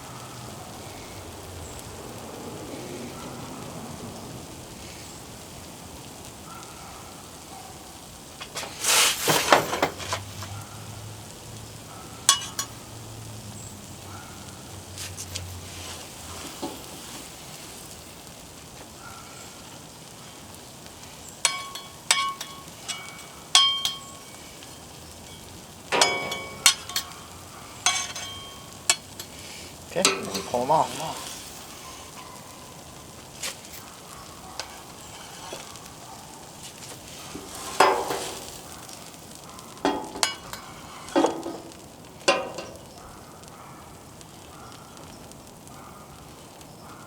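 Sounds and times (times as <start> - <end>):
food sizzling on a griddle: 0.0 - 47.0
metal spatula scraping and clinking: 12.3 - 12.8, 21.4 - 32.2, 34.6 - 36.1, 36.7 - 39.1, 39.8 - 42.9.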